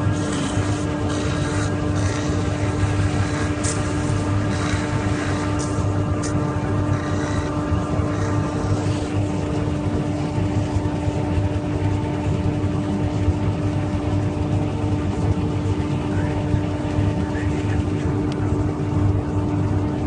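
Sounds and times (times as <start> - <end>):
wood lathe motor hum: 0.0 - 11.0.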